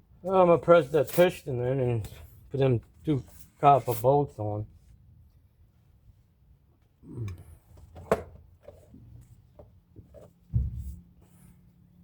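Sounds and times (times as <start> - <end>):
dull thud: 10.5 - 11.0.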